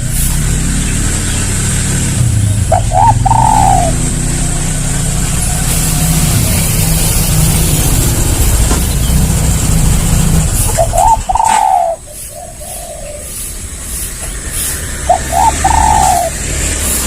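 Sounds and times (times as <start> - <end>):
dove cooing: 2.6 - 4.1, 10.6 - 13.6, 15.0 - 16.4.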